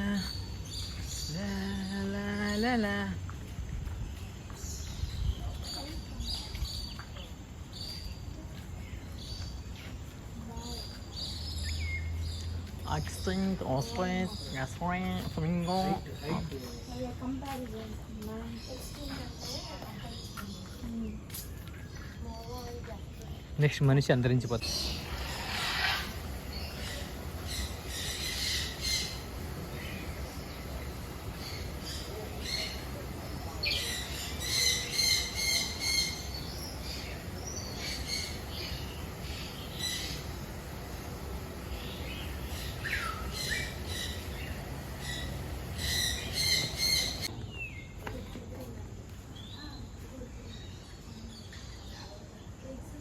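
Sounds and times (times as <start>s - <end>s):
birds calling in short sharp notes: 18.5s - 48.0s.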